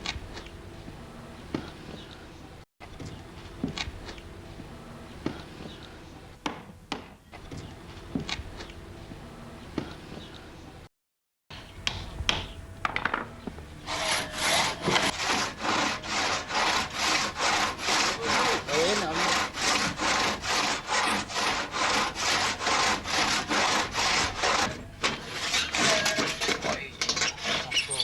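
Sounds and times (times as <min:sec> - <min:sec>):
hand saw cutting log: 0:13.9 - 0:28.0.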